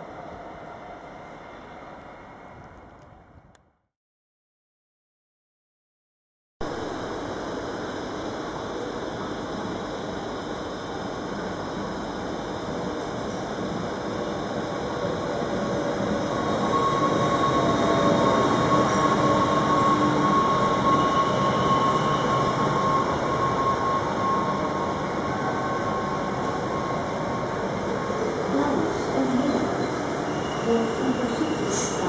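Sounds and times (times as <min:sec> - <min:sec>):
electric train running noise: 0:07.0 - 0:32.0
high whine: 0:16.2 - 0:29.5.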